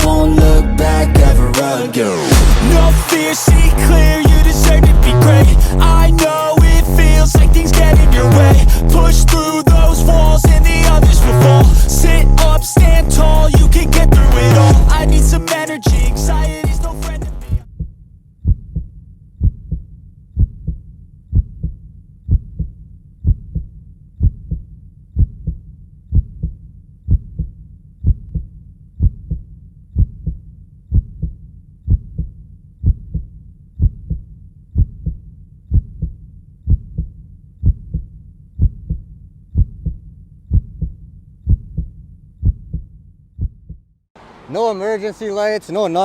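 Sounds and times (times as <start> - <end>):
heartbeat double thump: 0.4 - 1.6, 2.3 - 5.8, 6.6 - 8.8, 9.7 - 12.0, 12.8 - 15.1, 34.8 - 39.0, 39.6 - 43.8.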